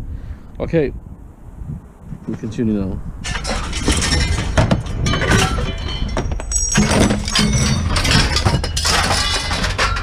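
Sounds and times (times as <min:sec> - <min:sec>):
steady low rumble: 0:00.0 - 0:10.0
clattering knocks and clinks: 0:03.2 - 0:10.0.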